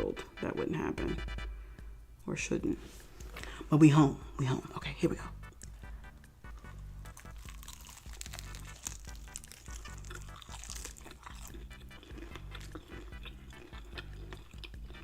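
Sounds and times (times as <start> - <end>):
crunching fried chicken: 6.7 - 15.0.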